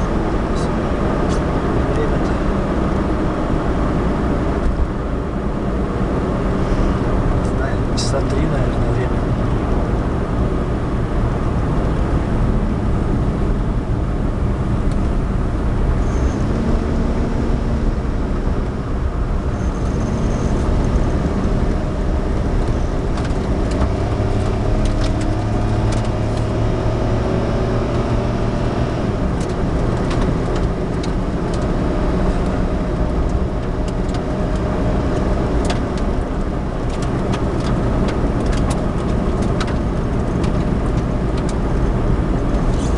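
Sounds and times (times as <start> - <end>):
car engine and road noise: 0.0 - 42.9.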